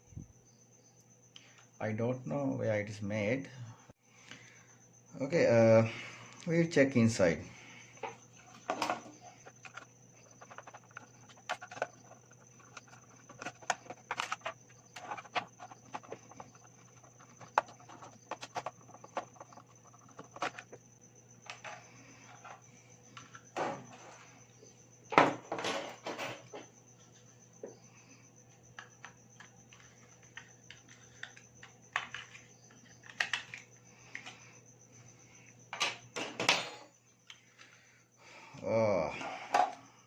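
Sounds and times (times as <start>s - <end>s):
clicks and knocks of casing handled: 8.0s - 20.7s, 28.8s - 34.4s.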